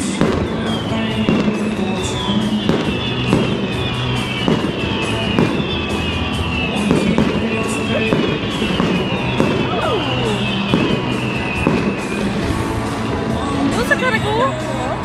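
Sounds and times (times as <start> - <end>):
fireworks bangs and crackles: 0.0 - 15.0
loud music over stadium speakers: 0.0 - 15.0.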